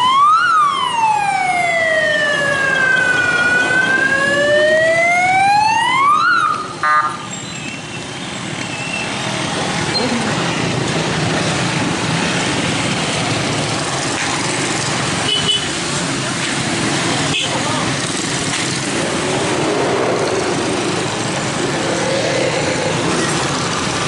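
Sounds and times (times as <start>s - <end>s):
siren wail: 0.0s - 7.2s
street traffic noise: 0.0s - 24.0s.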